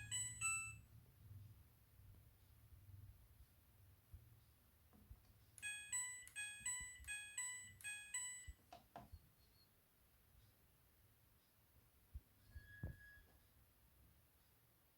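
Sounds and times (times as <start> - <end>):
washing machine chime tune: 0.0 - 0.9, 5.6 - 8.6.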